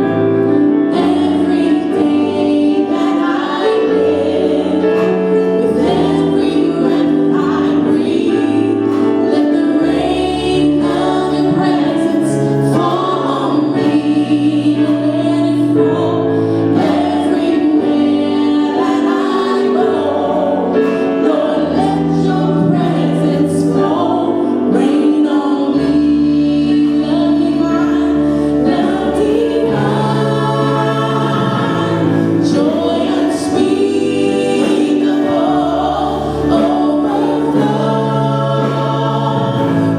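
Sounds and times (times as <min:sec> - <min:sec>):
choir singing worship music: 0:00.0 - 0:39.9
instrumental accompaniment: 0:00.0 - 0:39.9.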